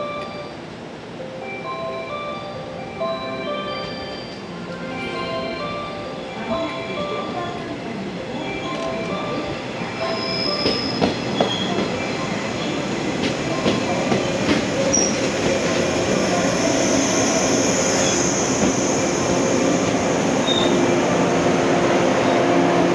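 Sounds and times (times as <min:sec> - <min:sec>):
electric train running: 0:00.0 - 0:22.9
high wheel squeals: 0:10.0 - 0:11.8, 0:14.9 - 0:15.3, 0:20.4 - 0:20.8.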